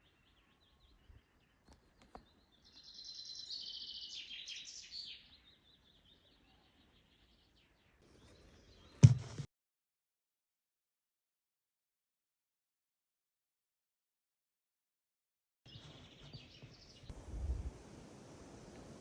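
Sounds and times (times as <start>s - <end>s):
loud thump: 9.0s - 9.5s.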